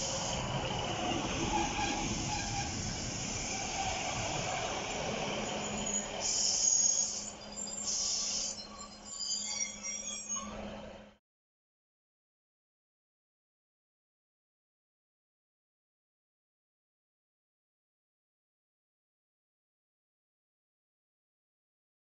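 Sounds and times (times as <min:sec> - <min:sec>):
train rumbling past with hissing: 0:00.0 - 0:11.2
short high-pitched squeals: 0:05.5 - 0:10.8.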